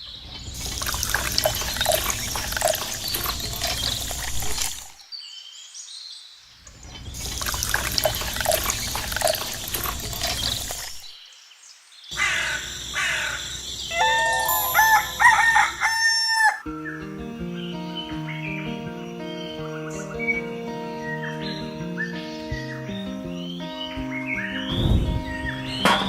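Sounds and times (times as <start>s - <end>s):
long sliding bird call: 12.2s - 16.6s.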